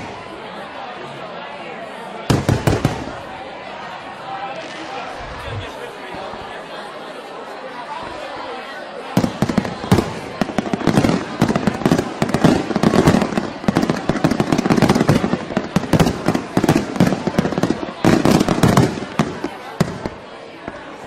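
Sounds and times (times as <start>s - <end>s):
fireworks bangs and crackling: 0.0s - 0.6s, 2.2s - 3.9s, 4.5s - 6.3s, 9.0s - 21.0s.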